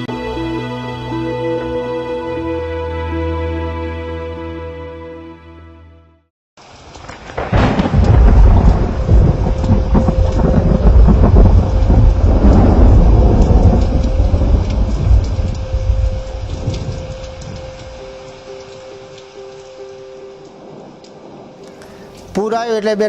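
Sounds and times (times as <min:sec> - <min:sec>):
crackles: 0:06.6 - 0:22.8
heavy rain: 0:06.6 - 0:23.0
deep rolling thunder: 0:07.0 - 0:19.2, 0:19.8 - 0:22.3.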